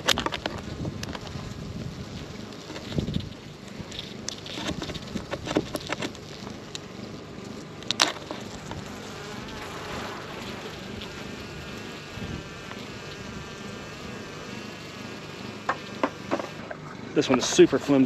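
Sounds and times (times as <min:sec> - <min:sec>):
sharp clicks and knocks: 0:00.0 - 0:01.4, 0:03.9 - 0:06.9, 0:15.6 - 0:17.6
bees buzzing: 0:00.0 - 0:18.0.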